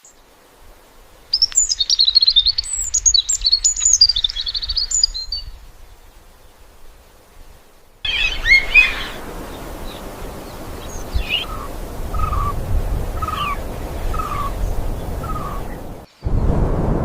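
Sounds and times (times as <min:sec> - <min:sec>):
birds high chirps: 0:01.3 - 0:06.1, 0:08.1 - 0:16.3.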